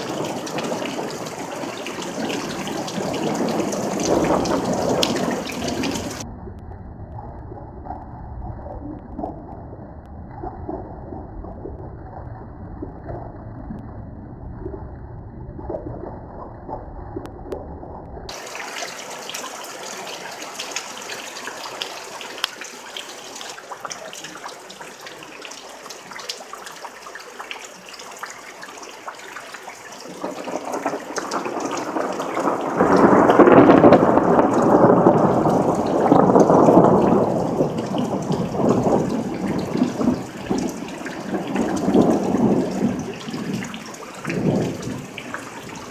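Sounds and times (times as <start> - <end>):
rain hissing: 0.0 - 6.2, 18.3 - 45.9
rolling thunder: 0.0 - 9.3, 30.1 - 45.9.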